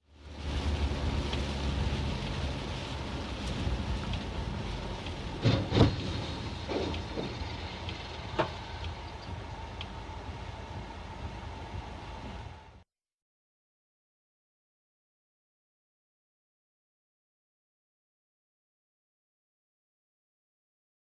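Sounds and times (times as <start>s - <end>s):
road and engine rumble: 0.0s - 12.8s
short thumps: 5.4s - 7.5s.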